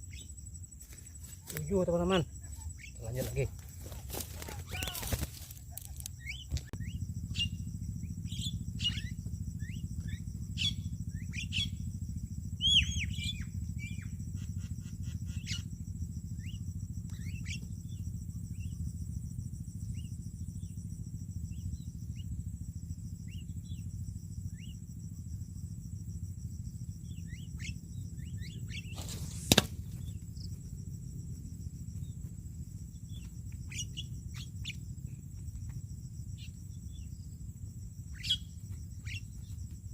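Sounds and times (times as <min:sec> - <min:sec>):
steady low rumble: 0:00.0 - 0:14.5, 0:15.8 - 0:39.9
birds chirping and whistling: 0:06.2 - 0:07.6, 0:08.2 - 0:11.8, 0:12.6 - 0:15.7, 0:27.1 - 0:30.2, 0:38.1 - 0:39.3.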